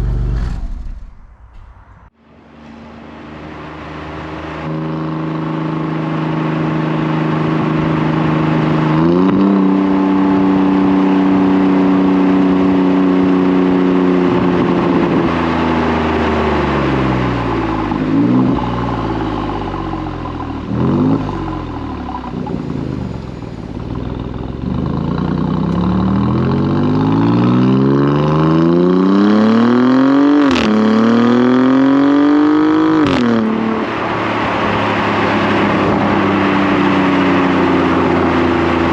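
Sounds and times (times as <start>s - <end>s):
exhaust crack on upshift: 0.0s - 2.1s
car engine accelerating: 0.0s - 38.9s.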